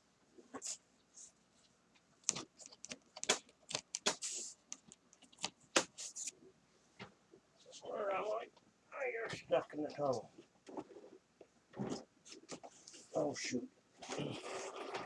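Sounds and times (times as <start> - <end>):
scraping rustles: 14.0 - 15.0.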